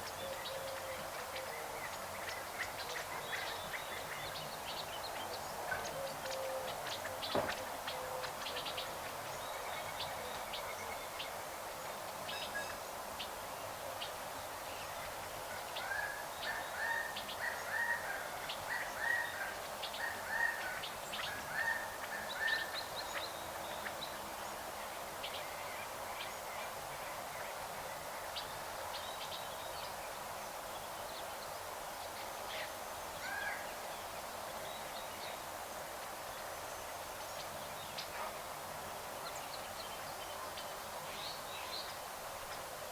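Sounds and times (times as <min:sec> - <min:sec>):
background hiss: 0:21.9 - 0:42.9.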